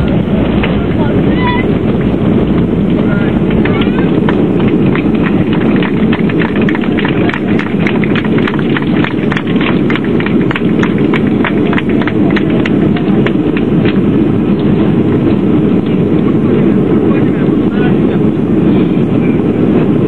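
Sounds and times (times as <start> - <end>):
aircraft cabin roar: 0.0 - 20.0
sharp rattles and clicks: 1.9 - 14.0.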